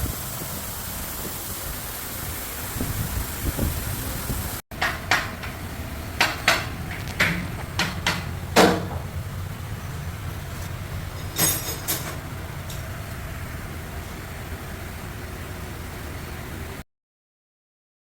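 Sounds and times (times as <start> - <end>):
metallic clanks and knocks: 4.8 - 9.4, 10.2 - 13.0
steady low hum: 5.0 - 16.8.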